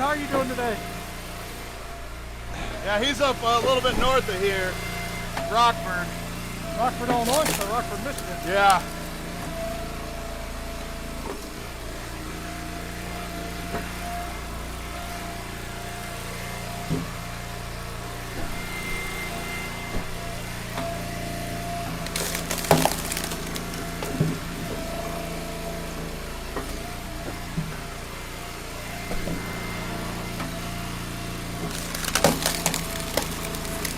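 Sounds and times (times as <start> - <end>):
log splitter engine running: 0.0 - 33.9
firewood cracking and splitting: 2.5 - 9.8, 20.1 - 26.5, 30.4 - 33.9.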